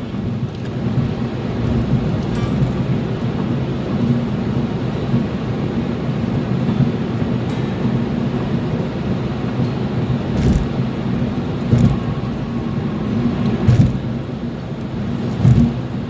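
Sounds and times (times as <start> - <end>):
car engine hum with road rumble: 0.0 - 16.0
dull thumps: 10.4 - 10.7, 11.7 - 12.0, 13.6 - 14.1, 15.3 - 15.8.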